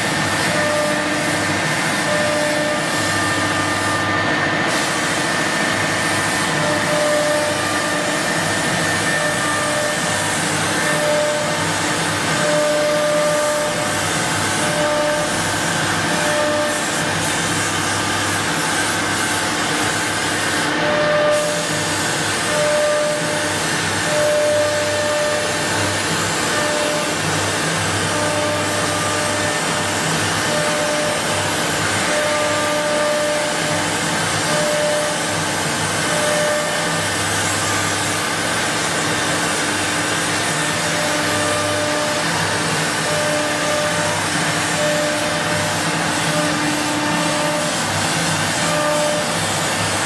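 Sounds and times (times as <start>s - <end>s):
cnc router motor and air hiss: 0.0s - 50.0s
machine hum: 0.0s - 50.0s.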